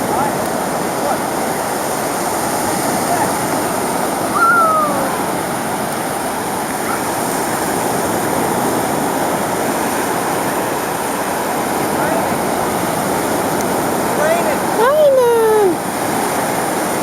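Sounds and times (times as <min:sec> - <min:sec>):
ocean surf washing: 0:00.0 - 0:17.0
falling high-pitched cry: 0:04.3 - 0:05.3.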